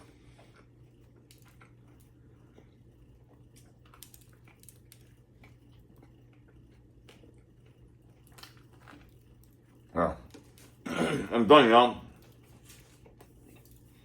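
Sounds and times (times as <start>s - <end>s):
person chewing food: 0.0s - 11.0s, 12.2s - 14.0s
steady low hum: 0.0s - 14.0s.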